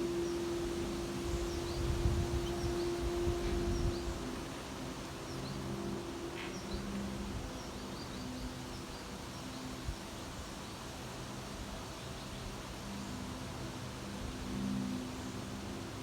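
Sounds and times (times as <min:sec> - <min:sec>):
steady low hum: 0:00.0 - 0:09.3.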